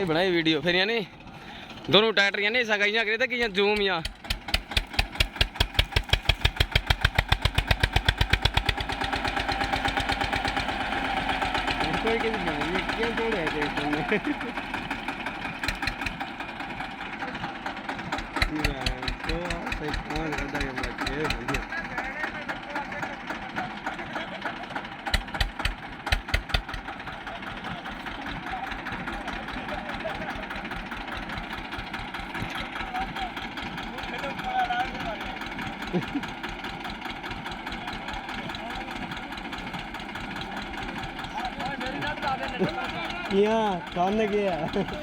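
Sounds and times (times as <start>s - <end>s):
tractor diesel engine revving: 0.0s - 45.0s
sharp knocks: 3.7s - 8.9s, 25.1s - 26.9s.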